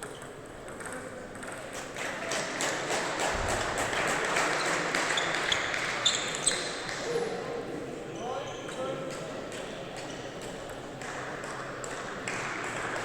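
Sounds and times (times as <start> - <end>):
table tennis balls bouncing: 0.0 - 1.7
background noise: 0.0 - 13.0
shoe squeaks on floor: 5.1 - 6.9.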